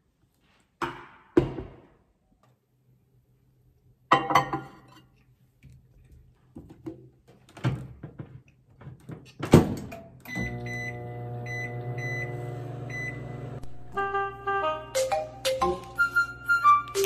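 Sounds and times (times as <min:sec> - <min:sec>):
microwave humming: 0:10.3 - 0:14.0.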